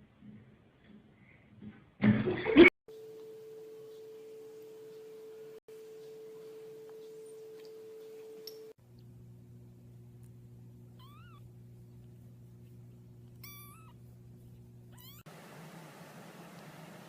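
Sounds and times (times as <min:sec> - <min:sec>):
steady low hum: 0:02.9 - 0:17.0
cat meowing: 0:11.0 - 0:11.4, 0:13.4 - 0:14.0, 0:14.9 - 0:15.3.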